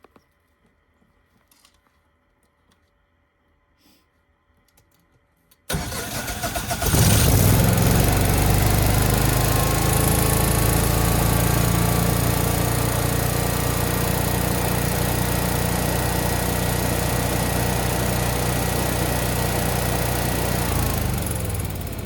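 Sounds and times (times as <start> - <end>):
generator engine cranking and running: 5.7 - 22.0.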